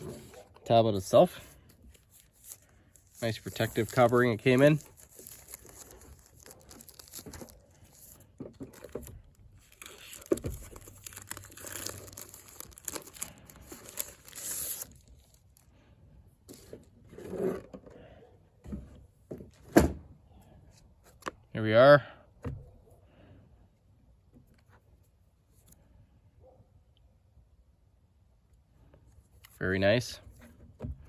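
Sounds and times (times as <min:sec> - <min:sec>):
protective covering rustling: 0:02.0 - 0:08.1.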